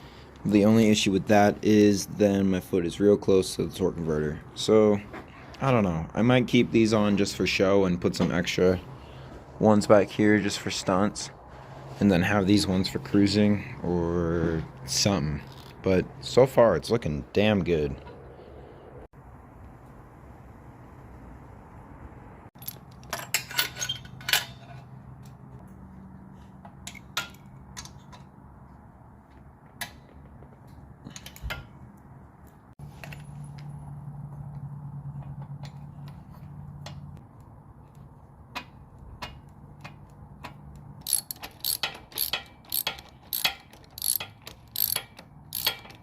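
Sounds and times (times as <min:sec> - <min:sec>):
metallic clicks and knocks: 0:38.4 - 0:46.0.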